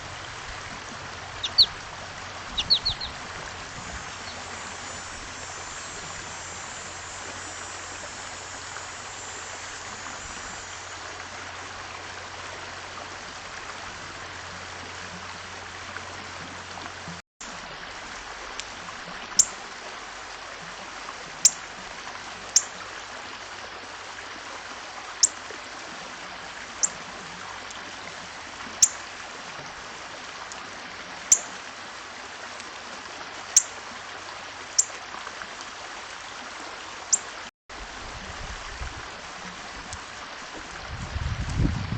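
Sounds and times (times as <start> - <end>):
small bird chirping: 1.4 - 1.8, 2.5 - 3.2, 3.9 - 6.5.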